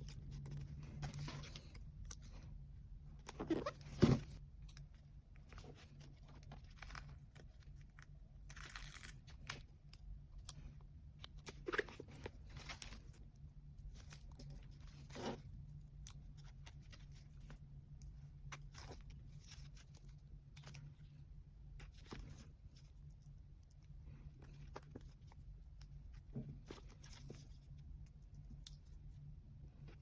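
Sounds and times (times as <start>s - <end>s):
paper rustling and crinkling: 0.0s - 2.4s, 11.4s - 13.2s, 26.2s - 27.7s.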